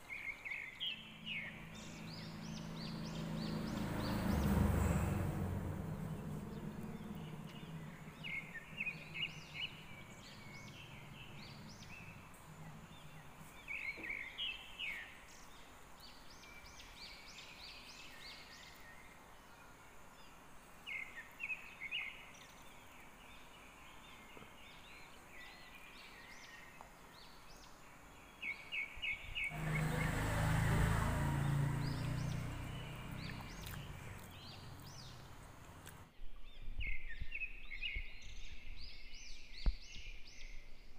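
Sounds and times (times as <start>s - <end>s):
birds chirping: 0.0s - 40.9s
low rumble with rushing noise: 1.3s - 13.4s.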